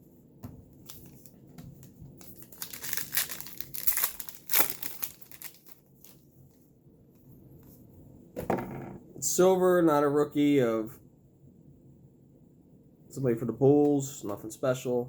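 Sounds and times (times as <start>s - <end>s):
wrapper crinkling: 0.8s - 6.2s.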